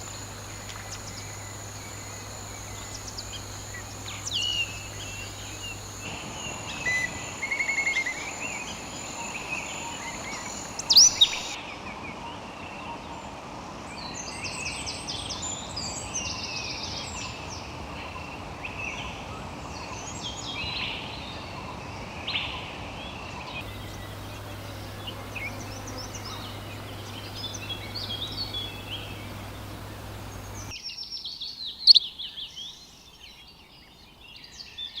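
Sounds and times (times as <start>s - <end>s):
birds chirping and singing: 0.0s - 6.1s, 23.6s - 30.7s
outdoor background hiss: 0.0s - 11.6s, 23.6s - 34.7s.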